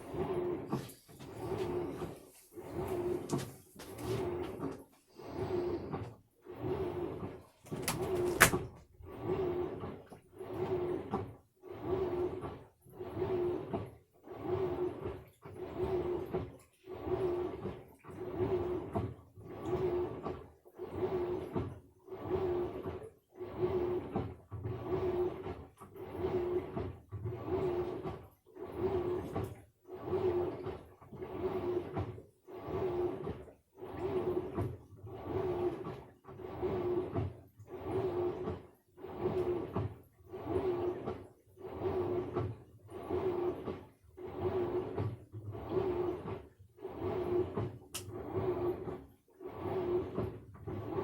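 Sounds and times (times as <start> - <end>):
washing machine drum turning: 6.5 - 9.8.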